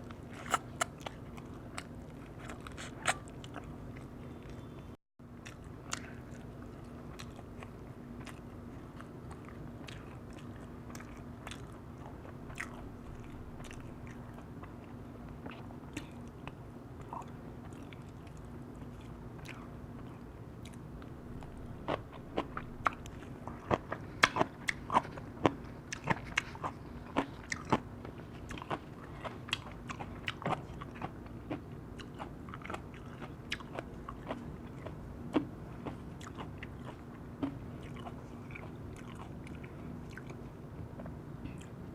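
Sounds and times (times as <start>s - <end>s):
person chewing crunchy food: 0.0s - 4.8s, 5.4s - 41.8s
wet mouth sounds: 0.3s - 1.2s.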